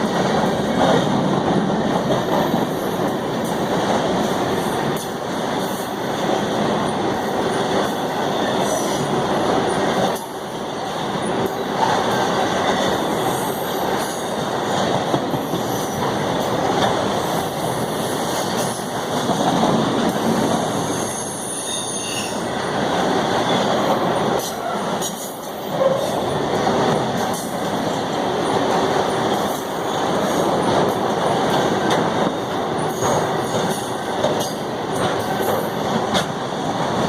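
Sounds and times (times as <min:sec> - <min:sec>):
freight train rumble and clatter: 0:00.0 - 0:37.0
train wheel squeals: 0:20.7 - 0:22.5, 0:31.8 - 0:34.6.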